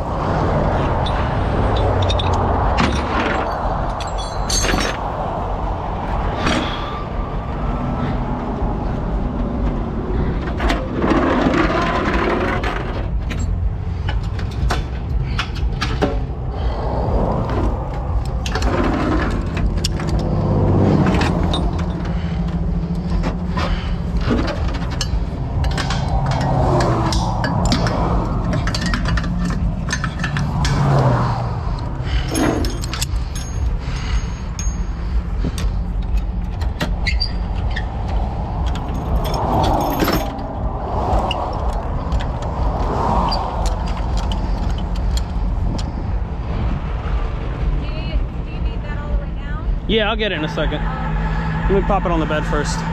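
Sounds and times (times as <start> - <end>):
truck engine running: 0.0 - 52.9
metallic clicks and clanks: 0.7 - 5.2, 9.6 - 16.5, 17.4 - 46.1
chains clinking and rattling: 0.8 - 5.2, 11.0 - 46.0.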